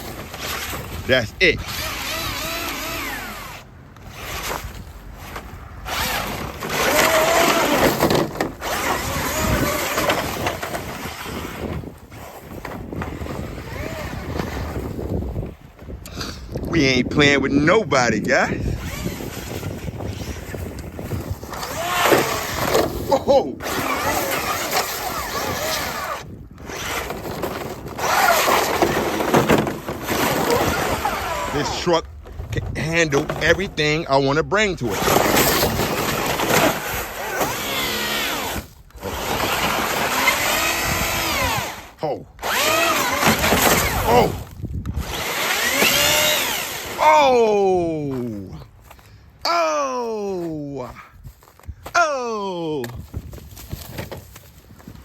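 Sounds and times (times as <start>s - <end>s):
electric motor whining: 0.0s - 14.9s, 18.6s - 31.9s, 34.9s - 47.5s
tyres and chassis rattling: 0.0s - 49.4s.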